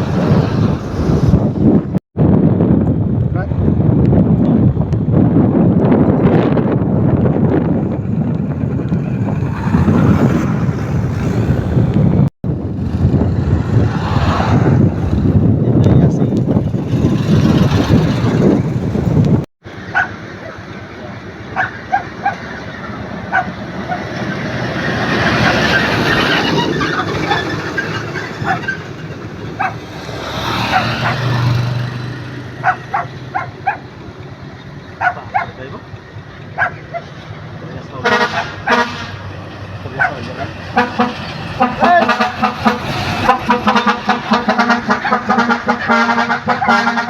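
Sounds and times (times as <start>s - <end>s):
vehicles passing on road: 0.0s - 47.0s
wind buffeting microphone: 0.0s - 47.0s
truck engine running: 14.6s - 47.0s
dog barking: 19.9s - 20.6s, 21.6s - 22.4s, 23.3s - 24.1s, 28.4s - 28.7s, 29.6s - 29.9s, 30.6s - 31.4s, 32.6s - 33.9s, 35.0s - 35.6s, 36.6s - 37.2s, 40.0s - 40.6s.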